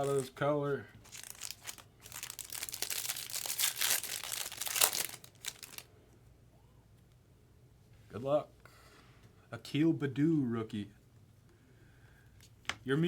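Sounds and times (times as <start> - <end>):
wrapper tearing and crinkling: 0.0 - 0.4, 1.0 - 5.9.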